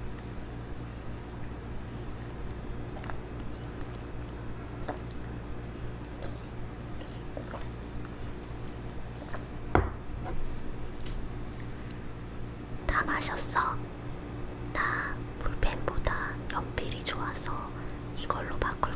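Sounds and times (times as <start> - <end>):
sipping and swallowing: 1.1 - 9.4.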